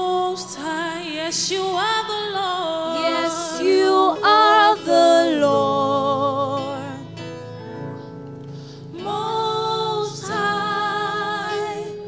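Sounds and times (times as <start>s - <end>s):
instrumental backing: 0.0s - 12.0s
voices singing long notes: 2.6s - 7.1s, 8.9s - 12.0s.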